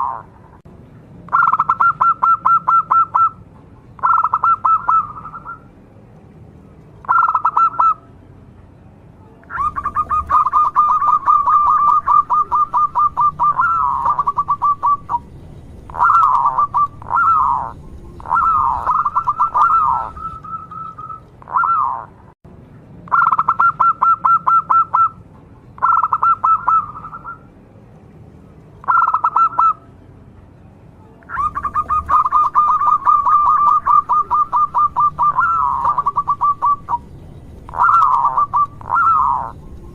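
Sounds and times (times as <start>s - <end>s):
dove cooing: 0.0s - 0.3s, 1.3s - 3.4s, 4.0s - 5.6s, 7.0s - 8.0s, 9.5s - 22.2s, 23.1s - 25.1s, 25.8s - 27.4s, 28.8s - 29.8s, 31.3s - 39.9s.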